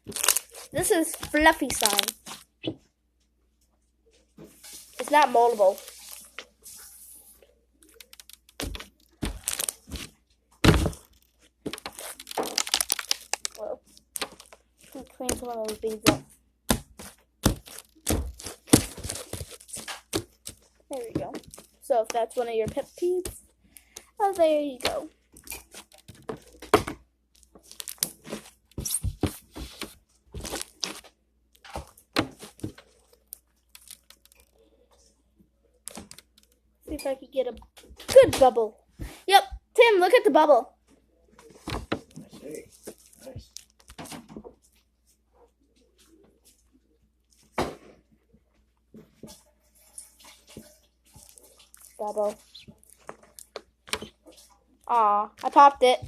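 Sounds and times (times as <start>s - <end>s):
slime crackling and popping: 0.0s - 2.4s, 7.8s - 29.8s, 30.4s - 34.6s
slime squeezed crackling pops: 8.1s - 14.5s.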